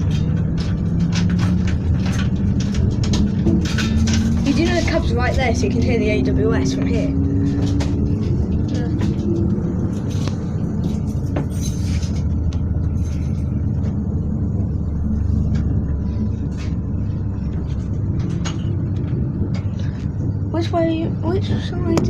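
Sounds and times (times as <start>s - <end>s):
light clicks and rattles: 0.0s - 14.6s
train rumbling: 0.0s - 22.0s.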